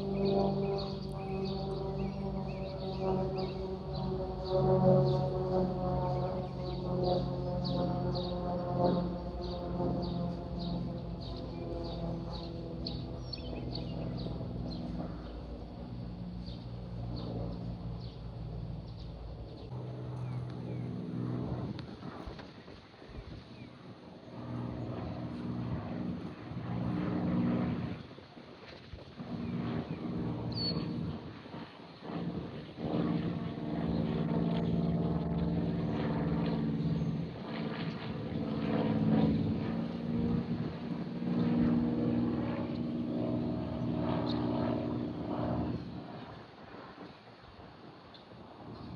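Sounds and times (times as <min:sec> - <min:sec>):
aircraft engine drone: 0:00.0 - 0:48.9
bird chirping: 0:00.1 - 0:05.2, 0:09.4 - 0:15.4, 0:30.5 - 0:30.9.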